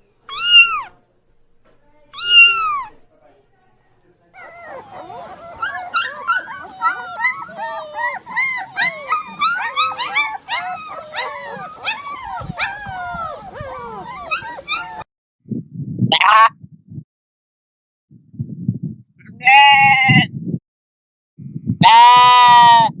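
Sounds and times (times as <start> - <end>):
puppies whimpering and yipping: 0.3 - 0.9, 2.2 - 3.0, 4.4 - 15.1.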